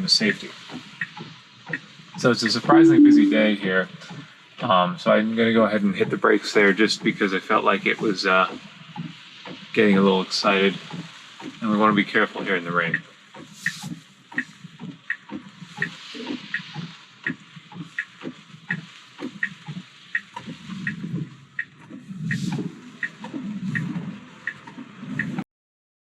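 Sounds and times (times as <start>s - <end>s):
rain: 0.0s - 2.6s, 4.0s - 25.3s
turn signal ticking: 1.0s - 2.0s, 12.9s - 25.4s
tyres on a wet road: 4.1s - 25.4s.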